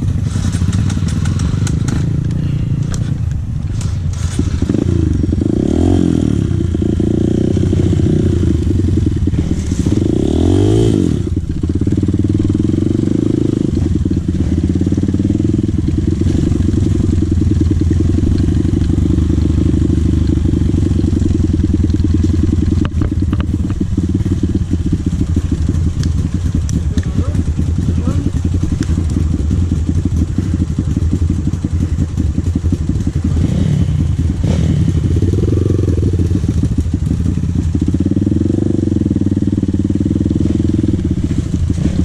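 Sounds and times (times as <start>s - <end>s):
dirt bike engine revving: 0.0s - 42.0s.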